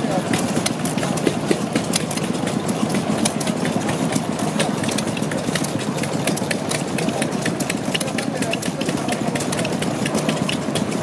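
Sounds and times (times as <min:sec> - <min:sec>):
sharp engine ticks: 0:00.0 - 0:11.0
stationary gas engine idling: 0:00.0 - 0:11.0.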